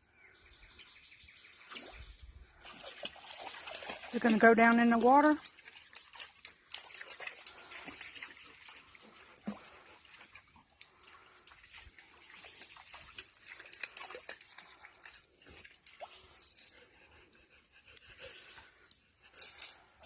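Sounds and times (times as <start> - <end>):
water splashing and dripping: 1.6 - 16.9.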